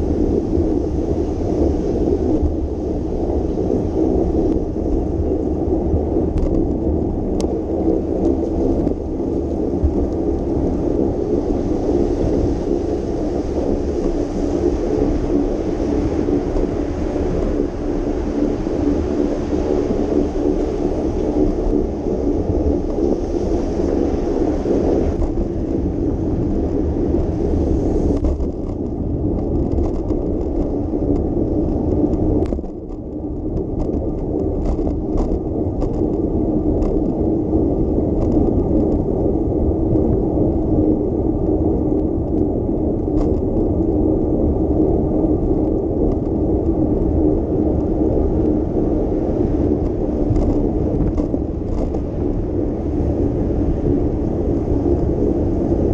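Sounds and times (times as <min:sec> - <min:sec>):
bicycle tyre and road noise: 0:00.0 - 0:55.9
light clicks and rattles: 0:28.2 - 0:36.2.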